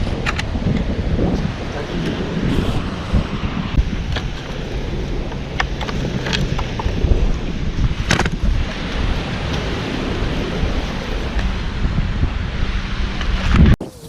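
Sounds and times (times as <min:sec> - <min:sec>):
ocean surf: 0:00.0 - 0:14.0
wind buffeting microphone: 0:00.0 - 0:14.0.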